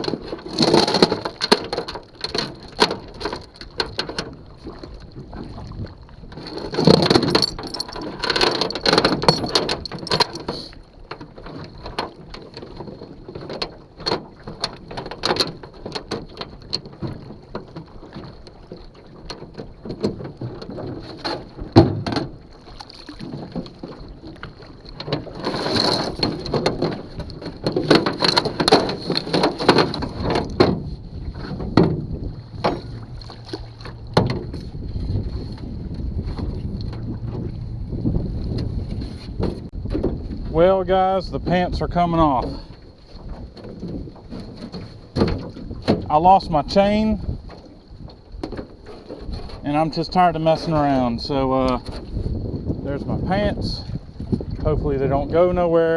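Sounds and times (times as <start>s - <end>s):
rough handling noise: 0.0s - 4.7s, 6.3s - 18.4s, 19.2s - 55.7s
gear knocking in a boat: 0.0s - 55.9s.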